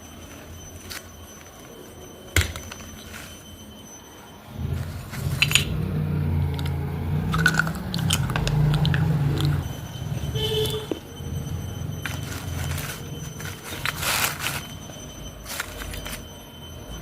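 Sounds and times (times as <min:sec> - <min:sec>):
chewing baked clay: 0:05.2 - 0:14.6.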